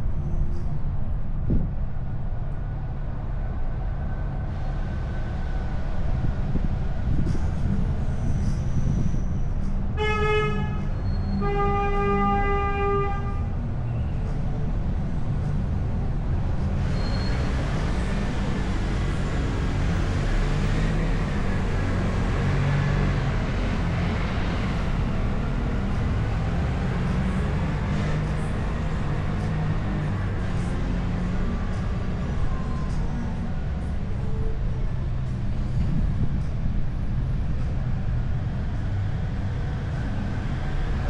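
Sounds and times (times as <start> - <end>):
car engine rumble: 0.0 - 10.0, 12.7 - 41.0
road noise: 0.0 - 41.0
wind and tyre hiss: 0.0 - 41.0
vehicle horn honking: 10.0 - 13.6.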